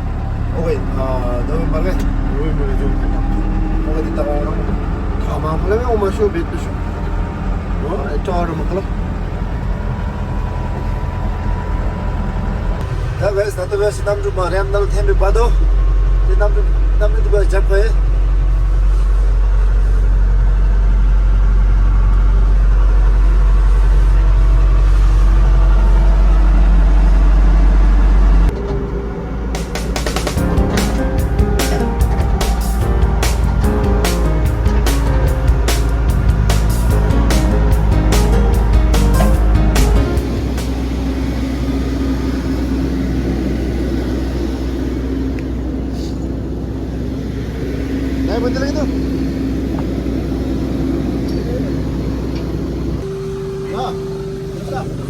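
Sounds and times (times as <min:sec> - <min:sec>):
vehicle running low rumble: 0:00.0 - 0:55.0
motor humming: 0:20.6 - 0:55.0.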